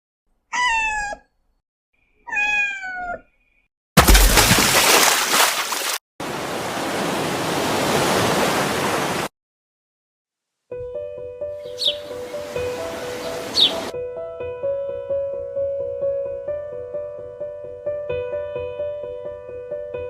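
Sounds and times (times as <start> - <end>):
kitten meowing: 0.5 - 1.3, 2.3 - 3.2.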